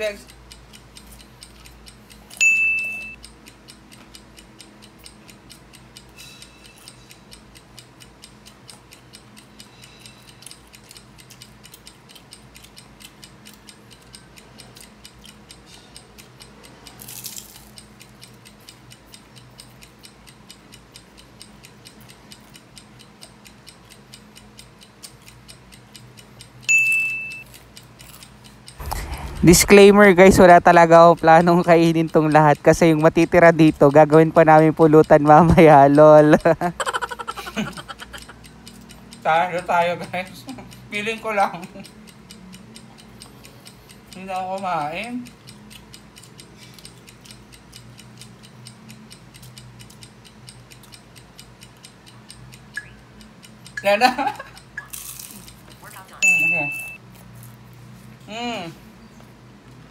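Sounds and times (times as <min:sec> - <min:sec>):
clock ticking: 0:00.0 - 0:57.1
bright ding: 0:02.4 - 0:03.2, 0:26.7 - 0:27.4, 0:56.2 - 0:57.0.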